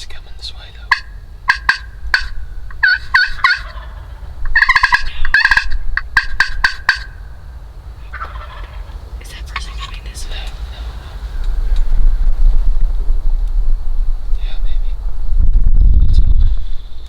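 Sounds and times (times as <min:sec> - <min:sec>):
turkey gobbling: 0:00.4 - 0:12.0
turkey clucking and yelping: 0:00.5 - 0:11.9.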